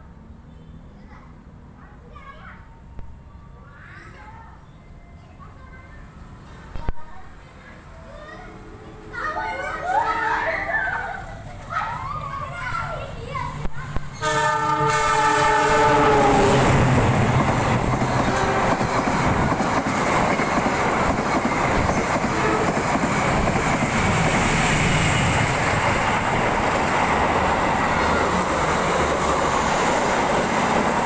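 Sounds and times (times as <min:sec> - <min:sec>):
train rushing and rattling past: 0:12.5 - 0:31.0
train horn: 0:14.2 - 0:17.0, 0:18.2 - 0:18.9, 0:22.2 - 0:22.8.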